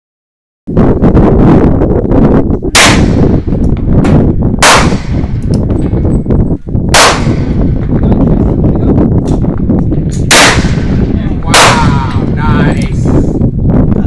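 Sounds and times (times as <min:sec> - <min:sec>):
loud low rumble: 0:00.8 - 0:14.0
gunshots: 0:02.7 - 0:03.6, 0:04.6 - 0:05.4, 0:06.9 - 0:07.9, 0:10.2 - 0:12.3.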